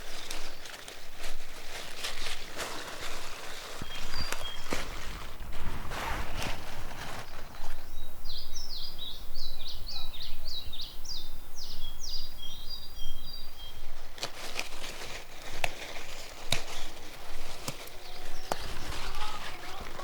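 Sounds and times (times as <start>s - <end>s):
songbird singing: 3.8s - 5.5s, 7.1s - 14.0s, 17.8s - 20.0s.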